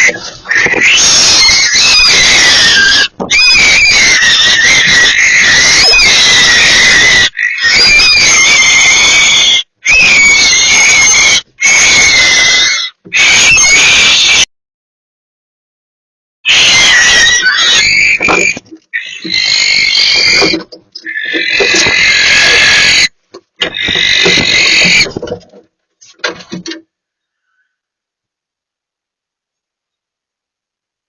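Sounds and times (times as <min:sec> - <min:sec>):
barn owl screeching: 0:00.0 - 0:14.5, 0:16.5 - 0:25.4.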